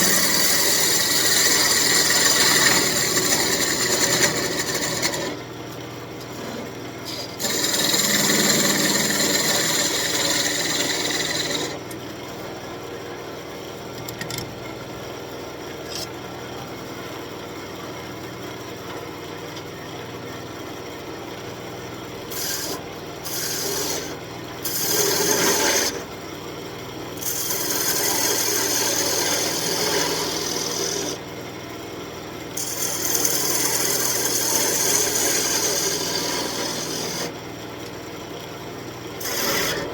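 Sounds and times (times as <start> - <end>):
lathe tool cutting wood: 0.0 - 5.4, 7.4 - 11.8, 22.3 - 26.0, 27.2 - 31.2, 32.6 - 37.4, 39.2 - 39.9.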